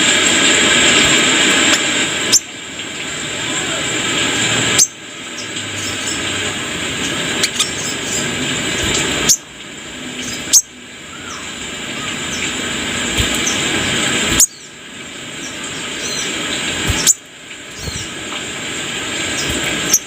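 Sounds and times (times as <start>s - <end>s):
songbird chirping: 10.1s - 18.2s
heavy hiss: 11.6s - 20.0s.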